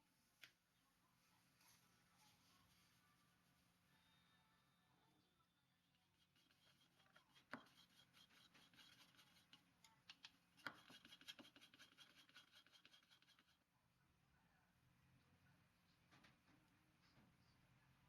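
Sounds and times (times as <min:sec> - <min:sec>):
utensil clicking against bowl: 0:06.4 - 0:13.6.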